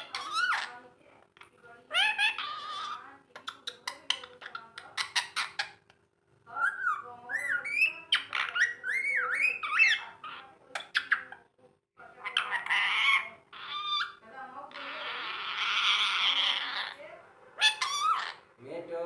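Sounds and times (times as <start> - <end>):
parakeet squawk: 0.0 - 5.9, 6.5 - 11.5, 12.1 - 18.5
parakeet clicks: 3.3 - 5.8
parakeet whistled calls: 6.6 - 11.2.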